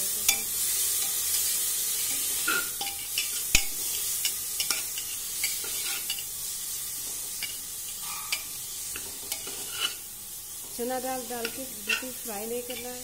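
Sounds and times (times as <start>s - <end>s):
food sizzling in oil: 0.0s - 13.0s
metal spatula scraping pot: 2.2s - 6.3s, 7.4s - 10.0s, 11.4s - 13.0s.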